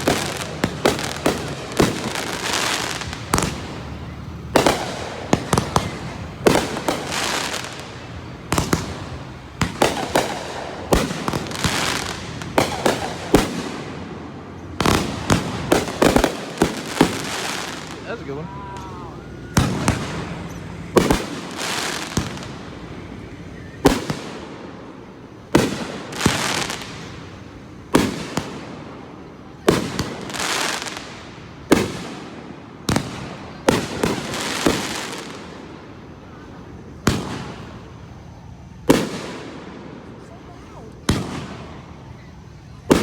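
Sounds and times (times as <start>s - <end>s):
fireworks bursting with hiss: 0.0s - 43.0s.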